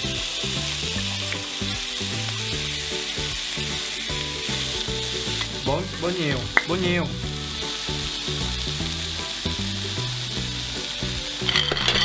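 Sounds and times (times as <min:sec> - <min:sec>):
bacon and vegetables sizzling: 0:00.0 - 0:12.0
spatula scraping griddle: 0:11.4 - 0:12.0.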